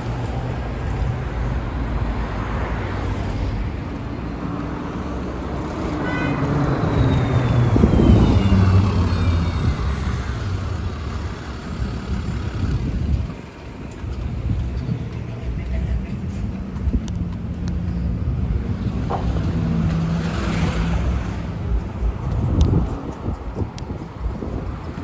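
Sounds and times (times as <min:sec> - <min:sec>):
road traffic: 0:00.0 - 0:25.0
vehicle engine rumble passing: 0:00.0 - 0:25.0.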